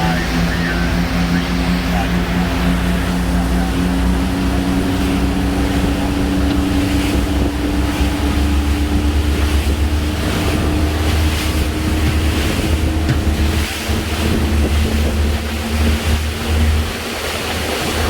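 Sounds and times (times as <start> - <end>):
boat diesel engines droning: 0.0 - 18.0
water rushing: 0.0 - 18.0
wind buffeting microphone: 0.0 - 18.0.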